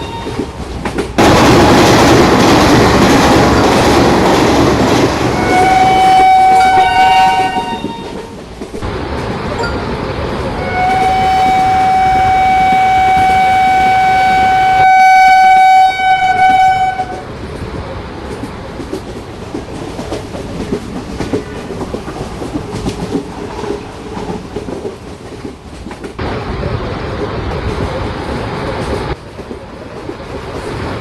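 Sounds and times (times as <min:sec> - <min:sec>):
train wheels clattering on track: 0:00.0 - 0:31.0
train horn blast: 0:05.3 - 0:08.3, 0:10.6 - 0:17.3.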